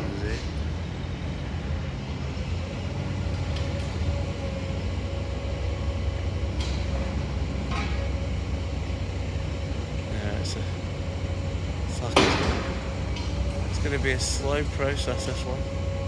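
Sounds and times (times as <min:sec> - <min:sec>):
machinery engine rumbling: 0:00.0 - 0:16.0.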